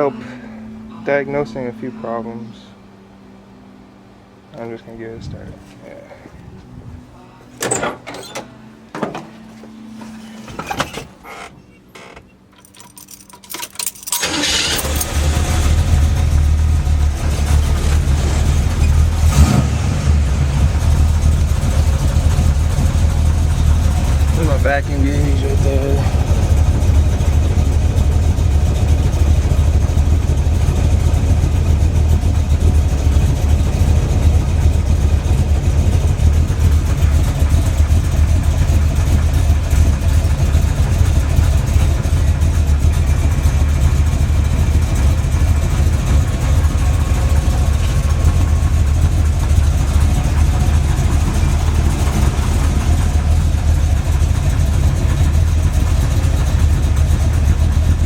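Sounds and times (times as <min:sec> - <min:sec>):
car engine idling: 0:00.0 - 0:58.0
engine ticking: 0:12.4 - 0:58.0
engine knocking: 0:14.5 - 0:58.0.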